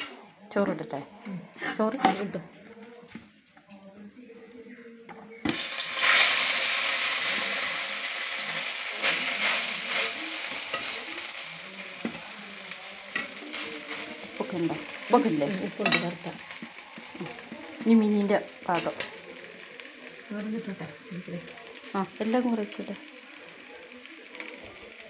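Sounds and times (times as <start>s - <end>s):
food sizzling in hot fat: 5.4s - 25.0s.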